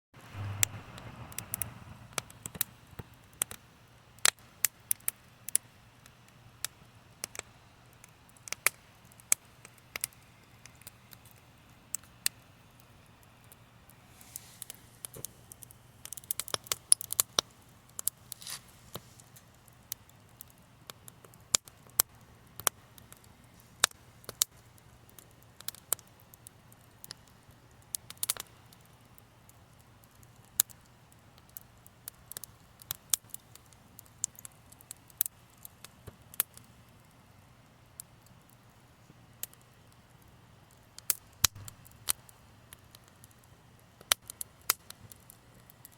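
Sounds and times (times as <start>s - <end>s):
low steady hum: 0.2s - 4.6s
wood fire crackling: 0.2s - 45.9s.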